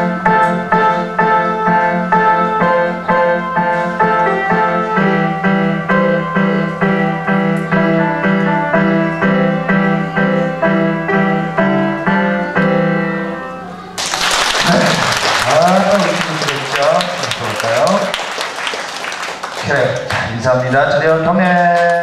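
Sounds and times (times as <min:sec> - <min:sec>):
piano playing: 0:00.0 - 0:20.1
applause: 0:14.0 - 0:22.0.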